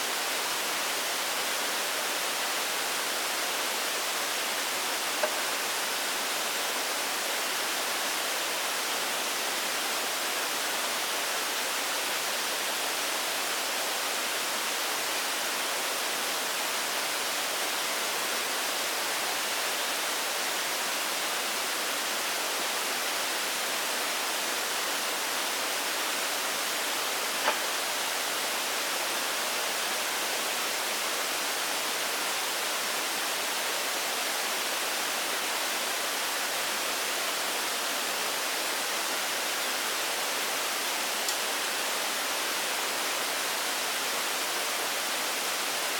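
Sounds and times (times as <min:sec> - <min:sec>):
steady hiss: 0:00.0 - 0:45.9
short sharp click: 0:05.2 - 0:05.6, 0:27.4 - 0:27.7.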